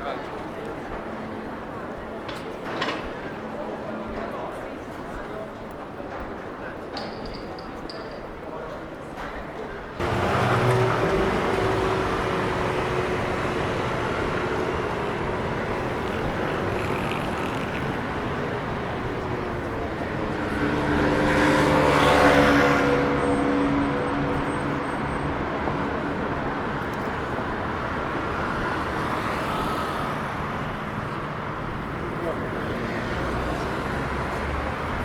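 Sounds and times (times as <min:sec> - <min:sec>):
city street traffic: 0:00.0 - 0:35.0
vehicle passing close by: 0:10.0 - 0:19.5.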